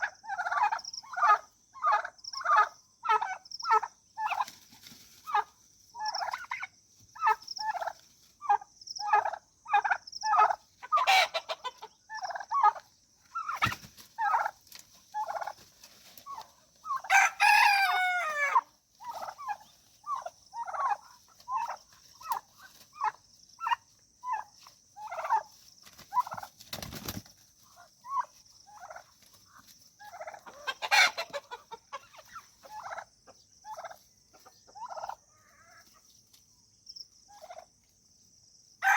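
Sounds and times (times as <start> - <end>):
turkey and chickens calling: 0.0 - 36.4, 37.3 - 38.0
rooster crowing: 17.0 - 18.7.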